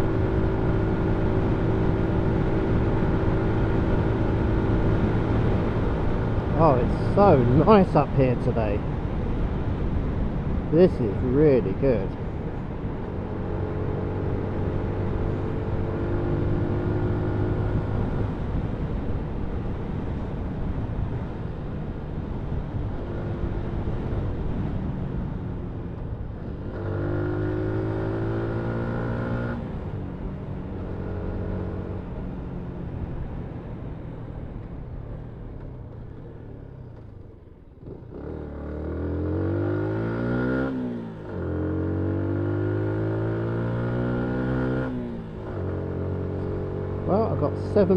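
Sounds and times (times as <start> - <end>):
motorcycle engine revving: 37.8 - 47.9.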